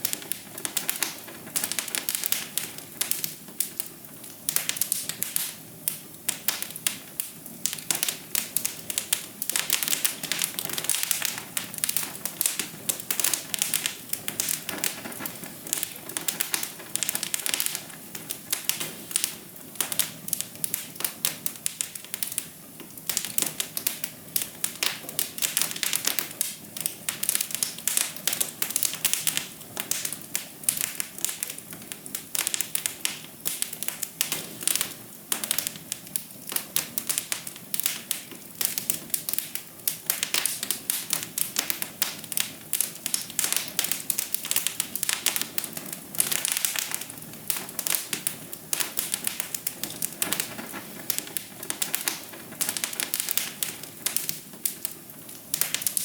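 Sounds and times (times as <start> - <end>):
soft steady hiss: 0.0 - 56.0
wood fire crackling and popping: 0.0 - 56.0.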